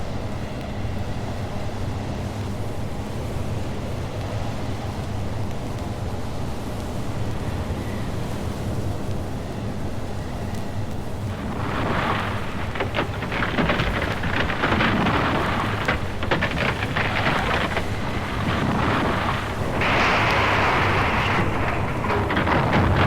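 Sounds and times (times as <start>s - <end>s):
dense rain-like noise: 11.3s - 23.0s
low rumble: 11.4s - 23.0s.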